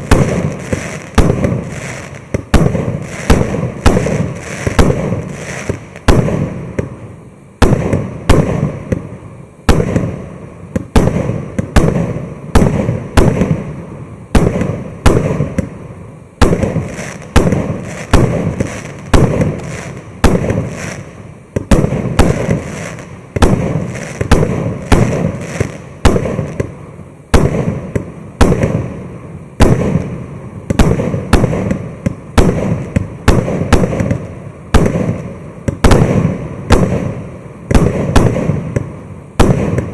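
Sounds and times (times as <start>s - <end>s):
fireworks bangs: 0.0s - 39.9s.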